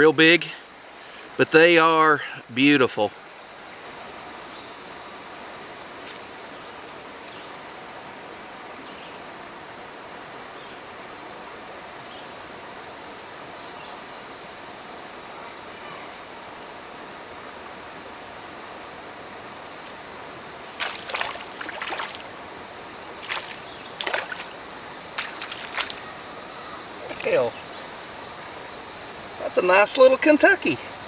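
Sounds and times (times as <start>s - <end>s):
shallow river flowing: 16.4s - 29.5s
sharp splashes in water: 20.8s - 22.3s, 23.2s - 26.2s.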